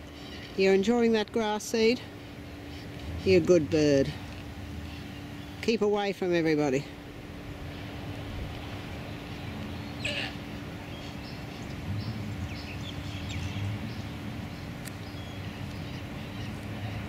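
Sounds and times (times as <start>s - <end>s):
birds chirping faintly: 0.0s - 6.1s, 7.0s - 17.0s
steady low hum: 0.0s - 17.0s
harsh bird call: 9.7s - 14.1s.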